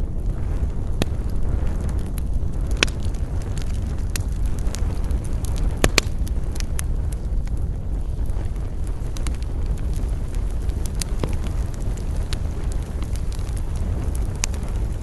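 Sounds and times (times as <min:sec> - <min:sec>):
campfire crackling and popping: 0:00.0 - 0:15.0
low fire rumble: 0:00.0 - 0:15.0.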